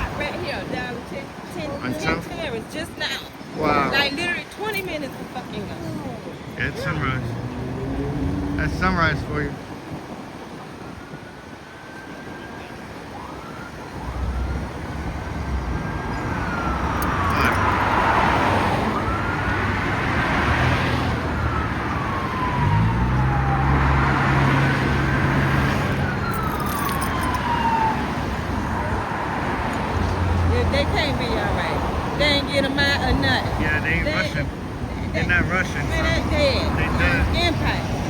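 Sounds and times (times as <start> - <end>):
emergency vehicle siren wailing: 10.1 - 38.0.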